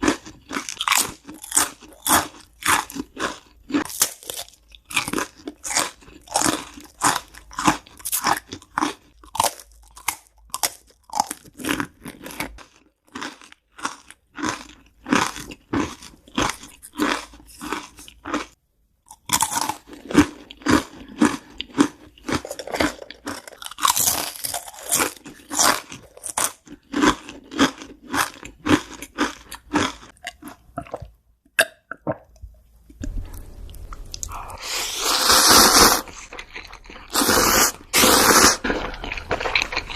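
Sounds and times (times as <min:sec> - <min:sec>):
person chewing crunchy food: 0:00.0 - 0:32.3, 0:32.9 - 0:39.9.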